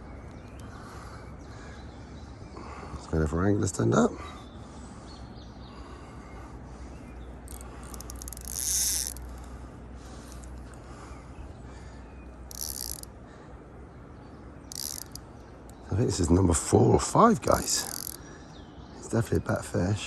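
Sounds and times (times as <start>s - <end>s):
fishing reel ratcheting: 7.5s - 9.5s, 12.5s - 13.1s, 14.7s - 15.2s, 17.4s - 18.2s.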